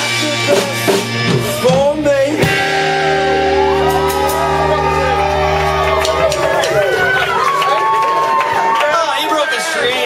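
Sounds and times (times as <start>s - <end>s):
rock band chord ringing: 0.0s - 7.5s
people shouting and whooping: 2.9s - 10.0s.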